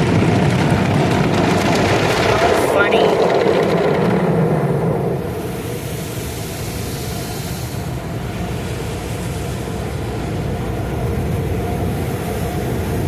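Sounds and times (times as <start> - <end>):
car wash low rumble: 0.0 - 13.0
car wash high hiss: 4.4 - 13.0.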